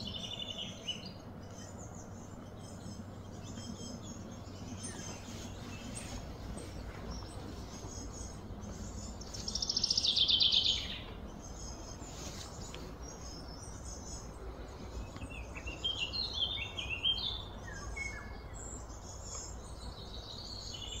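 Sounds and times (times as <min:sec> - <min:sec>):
low outdoor background: 0:00.0 - 0:21.0
wild birds calling: 0:00.0 - 0:21.0.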